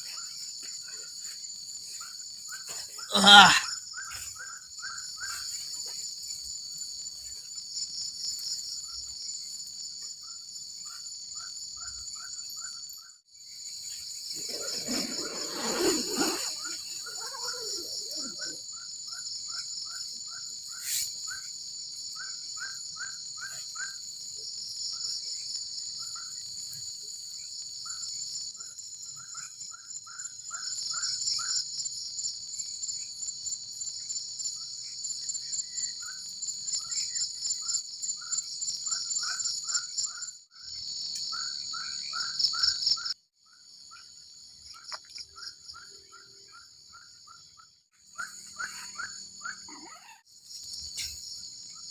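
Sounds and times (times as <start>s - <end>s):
high-pitched insect chorus: 0.0s - 51.9s
short chirping calls: 44.7s - 51.8s.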